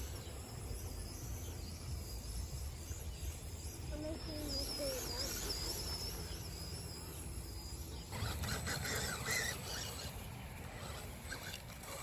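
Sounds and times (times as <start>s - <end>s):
electric motor whining: 4.2s - 12.0s.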